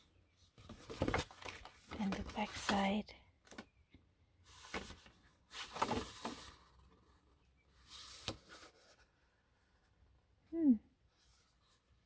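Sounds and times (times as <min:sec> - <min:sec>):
paper cards rustling and sliding: 0:00.6 - 0:03.6, 0:04.5 - 0:07.2.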